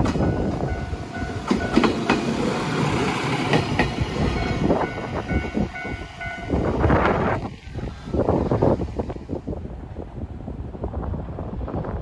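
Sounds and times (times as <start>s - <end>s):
wheels clacking over rail joints: 0.0s - 7.2s
diesel railcar passing: 0.0s - 11.9s.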